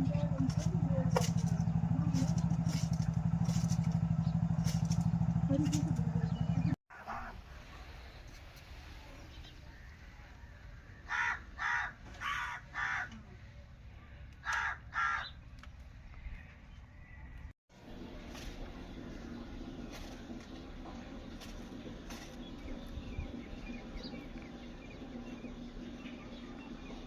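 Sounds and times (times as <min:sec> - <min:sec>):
engine running steadily: 0:00.0 - 0:06.8, 0:17.7 - 0:27.0.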